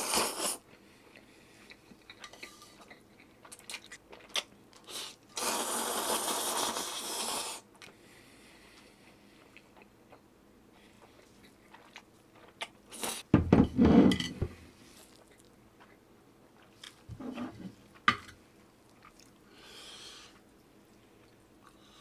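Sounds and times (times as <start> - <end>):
person chewing crunchy food: 0.2 - 5.2, 8.8 - 13.3, 14.9 - 17.1, 18.9 - 19.5.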